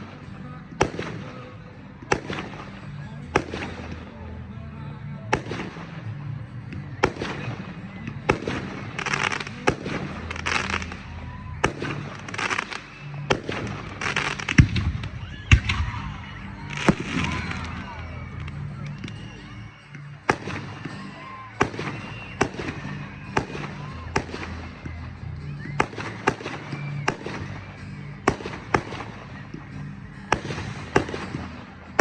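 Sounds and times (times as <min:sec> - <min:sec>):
fireworks crackling: 0:00.0 - 0:04.2, 0:05.3 - 0:32.0.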